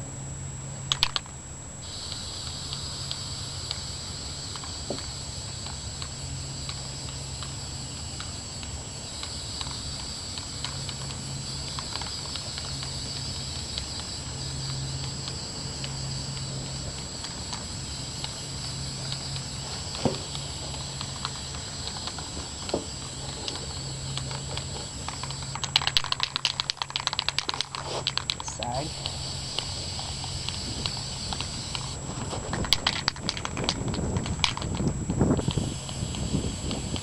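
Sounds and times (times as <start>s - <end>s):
faint ticks: 0.9s - 37.0s
aerosol can spraying: 1.8s - 32.0s, 32.6s - 37.0s.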